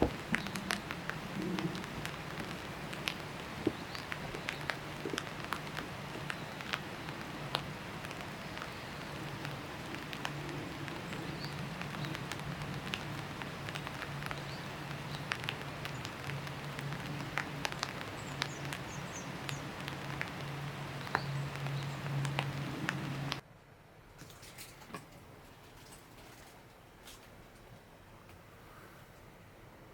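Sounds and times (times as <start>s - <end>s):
drops ticking: 0.0s - 23.4s
rain falling: 0.0s - 23.4s.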